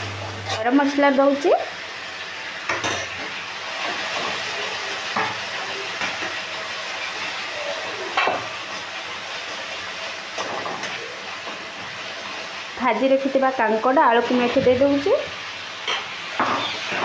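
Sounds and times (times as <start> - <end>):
masala sizzling in oil: 0.0 - 17.0
metal spatula scraping pan: 0.1 - 1.2.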